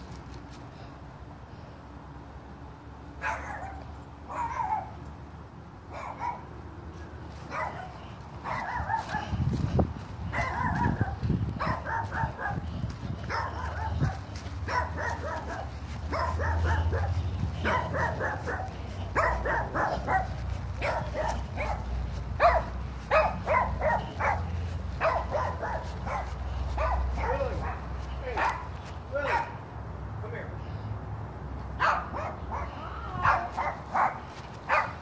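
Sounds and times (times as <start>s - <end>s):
dog barking: 3.2s - 5.0s, 5.9s - 6.5s, 7.5s - 9.4s, 10.3s - 12.7s, 13.3s - 29.6s, 31.8s - 35.0s.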